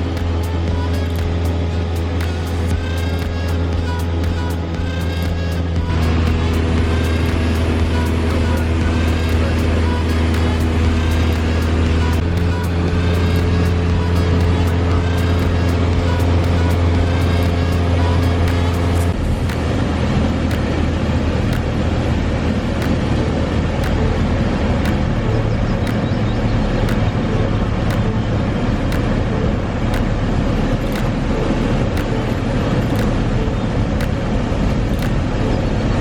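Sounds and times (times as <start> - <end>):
short clicks: 31.9 - 33.2, 34.9 - 35.2.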